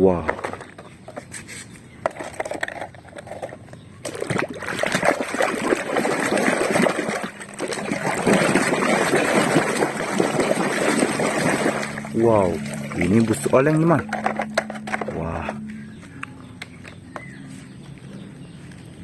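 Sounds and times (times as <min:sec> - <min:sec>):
water splashing and sloshing: 0:02.1 - 0:15.7.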